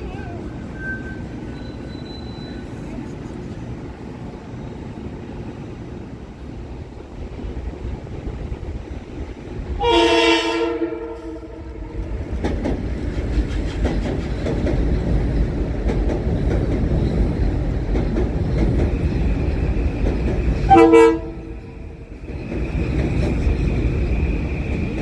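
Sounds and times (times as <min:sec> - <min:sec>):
train rumbling past: 0:00.0 - 0:25.0
train horn blast: 0:09.8 - 0:12.0, 0:20.7 - 0:21.5
wheels clicking over rail joints: 0:11.6 - 0:25.0.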